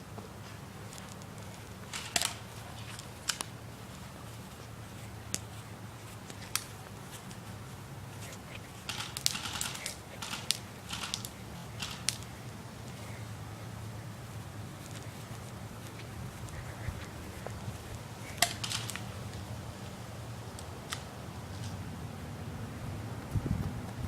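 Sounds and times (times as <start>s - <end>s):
airsoft guns firing: 1.9s - 2.5s, 8.8s - 12.3s, 18.3s - 19.2s.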